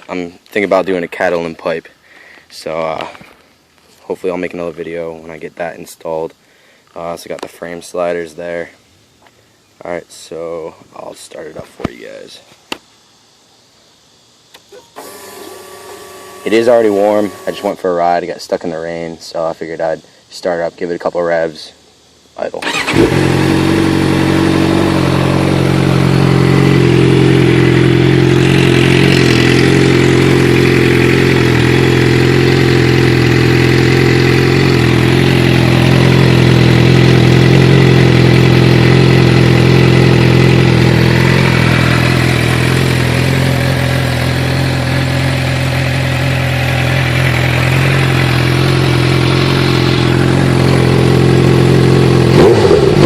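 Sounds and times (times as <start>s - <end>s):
motorcycle engine idling: 16.2s - 17.8s, 22.6s - 53.0s.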